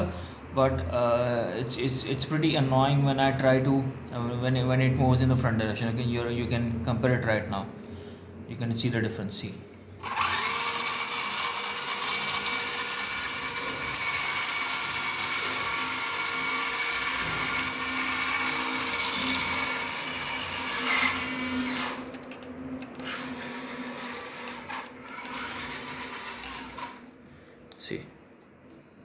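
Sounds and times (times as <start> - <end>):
electric motor and gearbox whine: 10.0 - 27.2.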